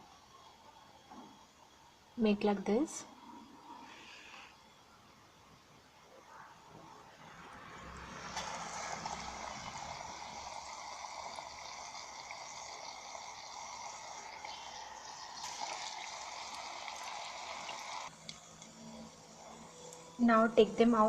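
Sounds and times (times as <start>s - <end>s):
food sizzling in hot oil: 7.8s - 18.5s.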